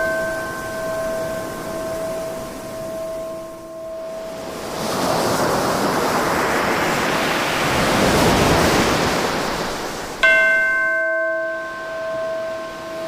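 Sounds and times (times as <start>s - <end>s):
bell ringing: 0.0s - 4.4s, 10.2s - 13.0s
ocean wave washing in: 0.0s - 10.3s.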